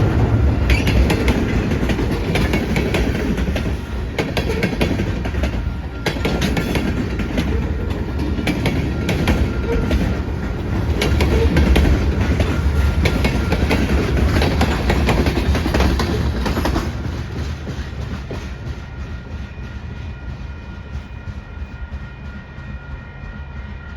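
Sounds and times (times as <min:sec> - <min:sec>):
freight train wheels clacking: 0:00.0 - 0:23.9.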